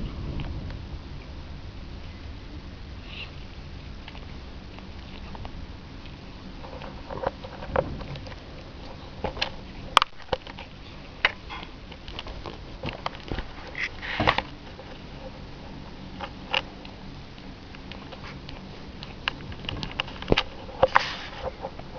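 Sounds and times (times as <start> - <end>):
scratchy handling noise: 4.1 - 16.8, 17.8 - 21.9.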